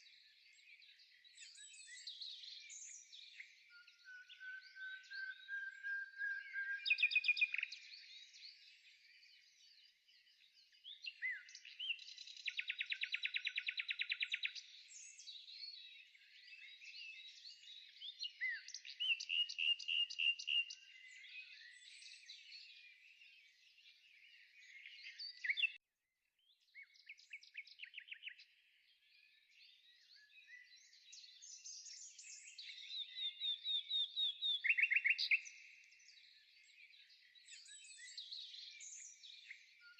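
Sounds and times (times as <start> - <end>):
birds chirping and whistling: 1.4 - 8.7, 23.8 - 25.8, 29.6 - 35.7, 36.6 - 39.9.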